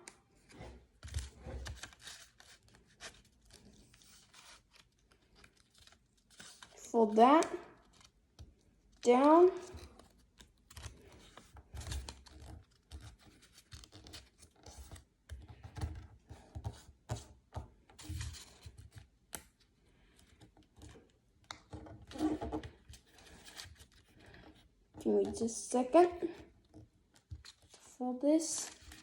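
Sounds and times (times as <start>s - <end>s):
paper being folded: 0.4s - 16.0s.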